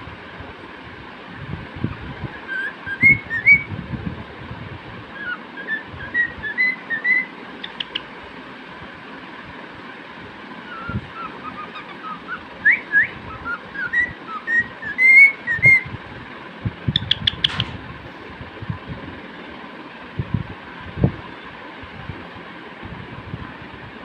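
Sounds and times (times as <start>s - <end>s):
cockatiel whistling: 2.4s - 3.7s, 5.2s - 8.0s, 10.7s - 15.9s
cockatiel high chirps: 5.2s - 8.1s, 10.7s - 15.8s.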